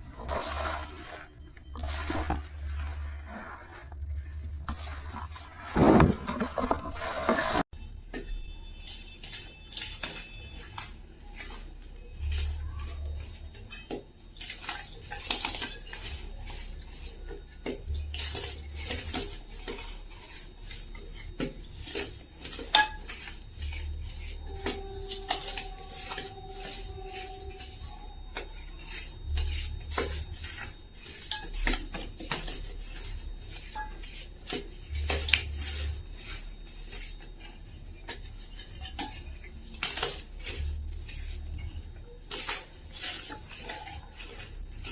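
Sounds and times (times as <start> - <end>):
clicks taps and scraping: 3.7 - 36.0
brief steady tone: 23.6 - 30.2.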